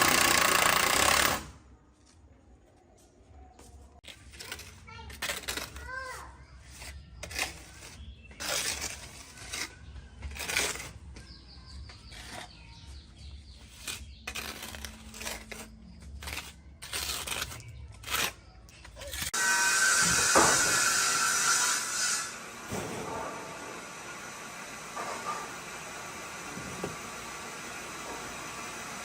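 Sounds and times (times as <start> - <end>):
hand tools knocking and scraping wood: 18.9 - 21.6, 24.9 - 28.6.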